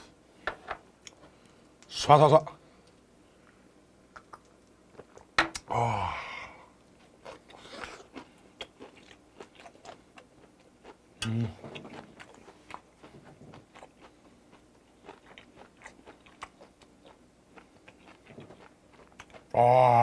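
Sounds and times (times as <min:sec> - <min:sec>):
low hum from closed mouth: 0:02.8 - 0:20.0
wet mouth clicks: 0:04.1 - 0:05.7
close chewing with crunches: 0:07.0 - 0:19.6.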